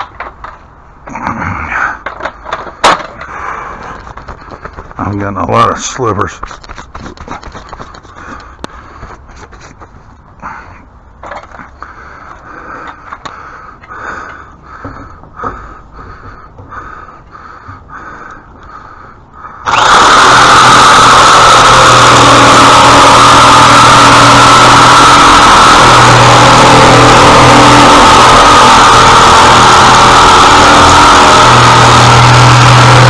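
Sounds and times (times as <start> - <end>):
hand scraping on wood: 9.0 - 10.1
loud power tool running: 19.7 - 33.0.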